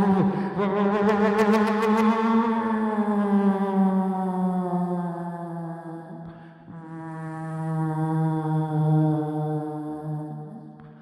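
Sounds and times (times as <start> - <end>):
person humming low drone: 0.0 - 1.5.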